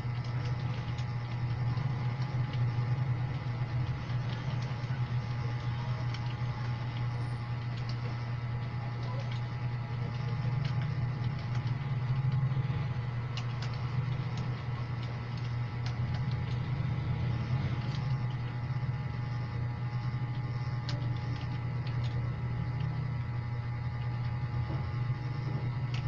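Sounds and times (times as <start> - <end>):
steady low hum: 0.0 - 26.0
keyboard keys clicking: 0.2 - 8.2, 13.3 - 18.5.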